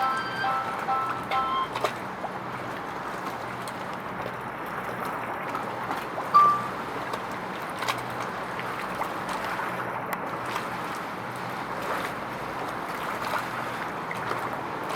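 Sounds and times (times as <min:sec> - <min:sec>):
short high-pitched tone: 0:00.0 - 0:01.9, 0:06.4 - 0:06.8
moving water: 0:00.0 - 0:14.9
wind: 0:00.0 - 0:14.9.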